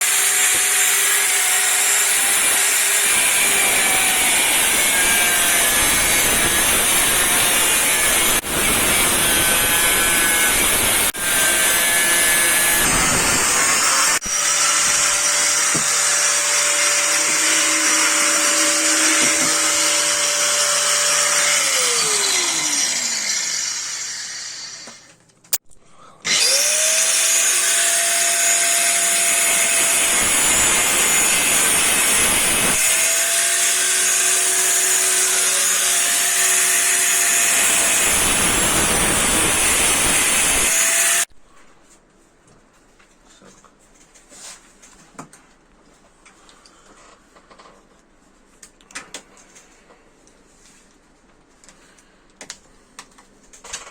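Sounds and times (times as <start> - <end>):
power tool motor whining: 0.0 - 25.1, 26.3 - 41.3.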